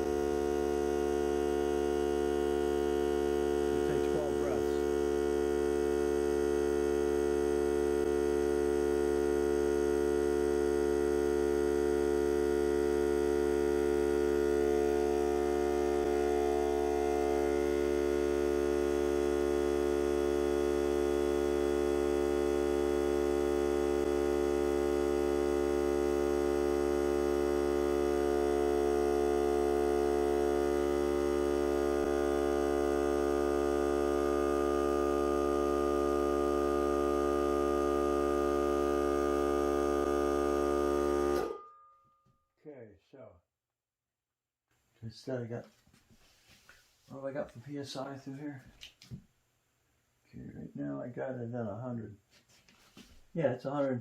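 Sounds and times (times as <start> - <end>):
air compressor motor hum: 0.0 - 41.6.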